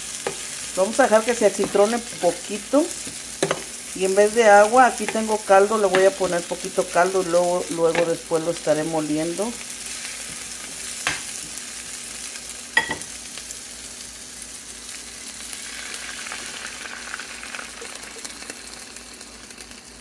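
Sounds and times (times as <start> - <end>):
vegetables sizzling in frying pan: 0.0 - 20.0
broth pouring into pan: 15.5 - 20.0.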